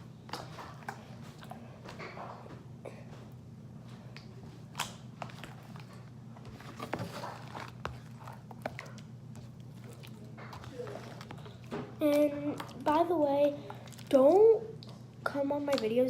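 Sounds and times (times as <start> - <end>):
slime squelching: 4.1 - 16.0.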